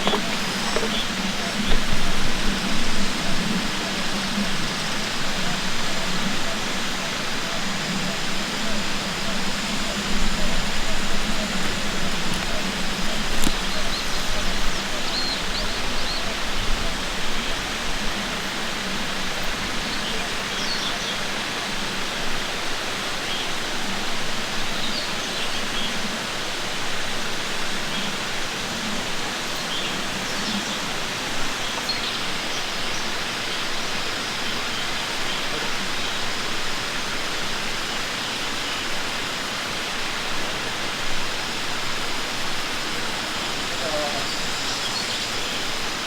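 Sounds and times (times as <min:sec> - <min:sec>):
running water rushing: 0:00.0 - 0:46.0.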